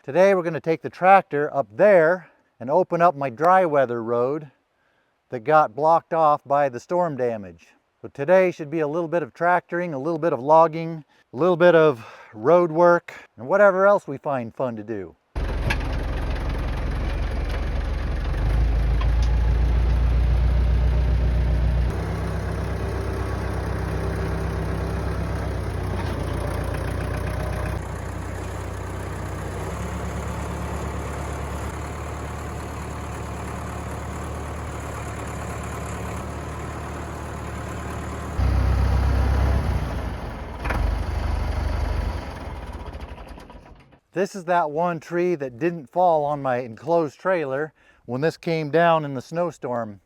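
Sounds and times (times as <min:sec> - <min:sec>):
tractor engine running: 0:15.4 - 0:44.0.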